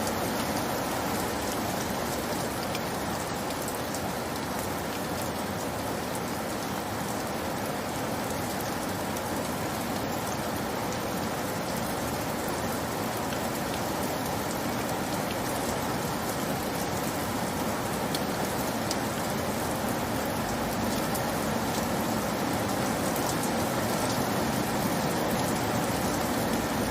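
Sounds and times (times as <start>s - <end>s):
steady rain falling: 0.0s - 26.9s.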